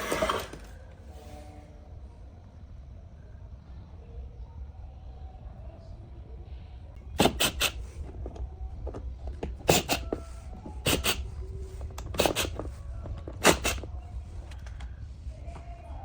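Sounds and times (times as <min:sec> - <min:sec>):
steady low rumble: 0:01.7 - 0:16.0
tools knocking and clicking: 0:07.2 - 0:14.9.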